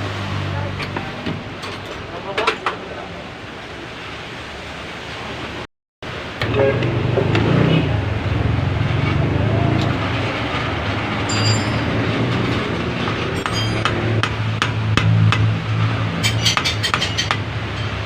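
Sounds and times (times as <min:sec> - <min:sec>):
hand tools clinking on metal: 0:11.2 - 0:14.0, 0:16.2 - 0:18.0.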